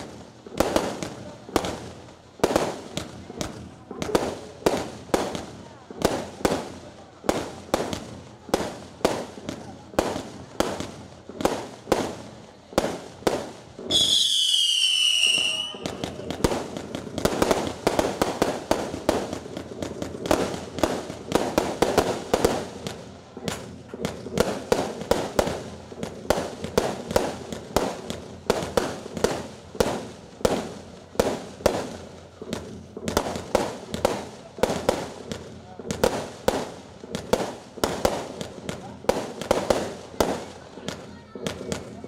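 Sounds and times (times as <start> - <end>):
fireworks bangs and crackling: 0.0 - 42.0
high shrill firework whistle: 13.9 - 16.2.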